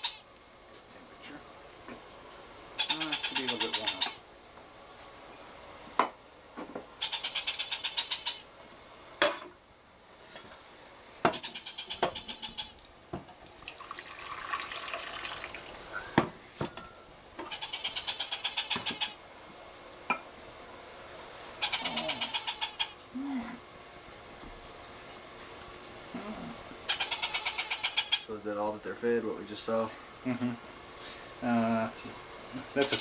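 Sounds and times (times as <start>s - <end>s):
parrot chicks begging chirps: 0.0s - 0.3s, 2.8s - 4.2s, 7.0s - 8.5s, 11.3s - 12.8s, 17.5s - 19.2s, 21.6s - 23.0s, 26.9s - 28.3s.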